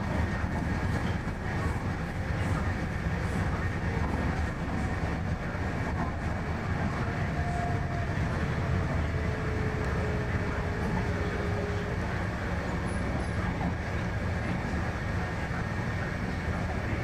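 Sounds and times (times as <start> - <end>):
train rumble inside carriage: 0.0 - 17.0.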